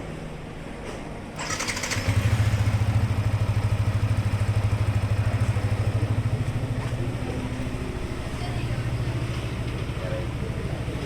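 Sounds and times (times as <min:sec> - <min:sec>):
engine starter noise: 0:01.4 - 0:04.1
motorcycle engine idling: 0:01.4 - 0:11.0.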